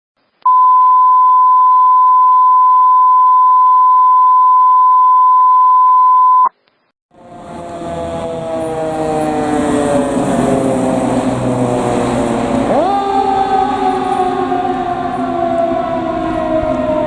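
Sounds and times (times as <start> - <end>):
electronic beep tone: 0.5 - 6.5
falling pitched tones: 7.1 - 17.0
vehicle noise: 7.1 - 17.0.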